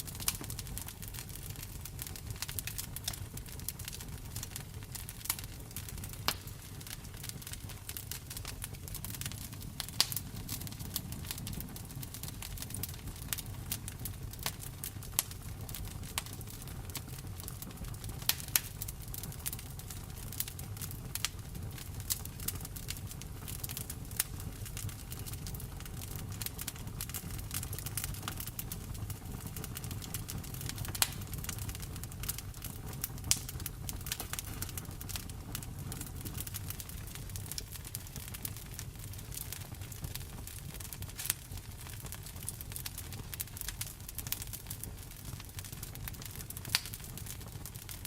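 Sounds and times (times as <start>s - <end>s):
wood fire crackling: 0.0s - 48.0s
rain pattering: 24.2s - 42.8s.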